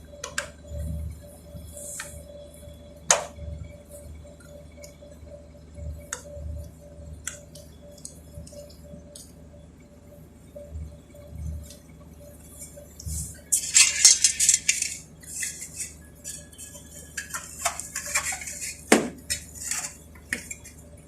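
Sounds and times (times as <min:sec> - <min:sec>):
faint steady hum: 0:00.0 - 0:21.0
metal tools clicking and tapping: 0:13.6 - 0:20.7.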